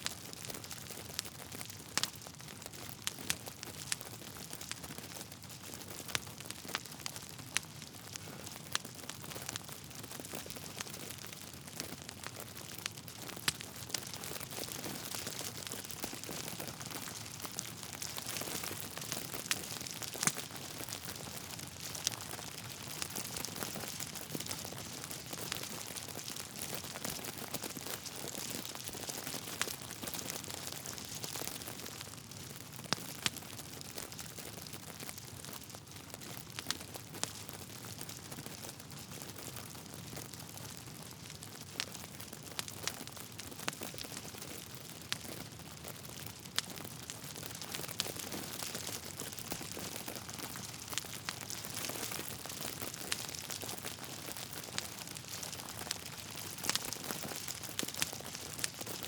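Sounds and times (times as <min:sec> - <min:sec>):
logs crackling in fire: 0:00.0 - 0:59.0
sharp pops of fire: 0:12.7 - 0:31.6, 0:47.4 - 0:59.0.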